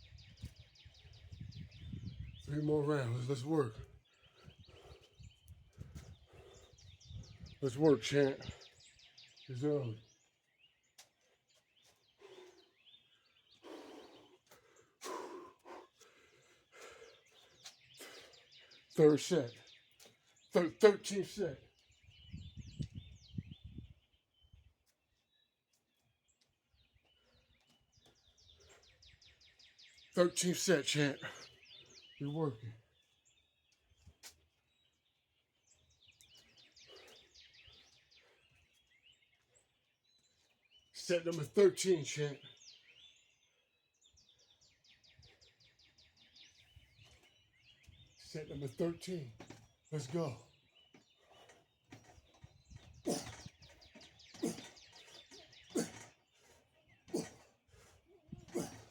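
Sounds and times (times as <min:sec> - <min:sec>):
faint bird chirps: 0:00.0 - 0:58.9
faint heavy exhaled breaths: 0:11.2 - 0:18.9, 0:50.8 - 0:58.9.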